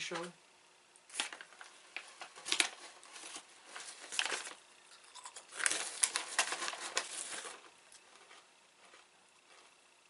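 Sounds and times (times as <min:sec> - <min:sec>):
crunching crispy snack: 0:03.7 - 0:10.0.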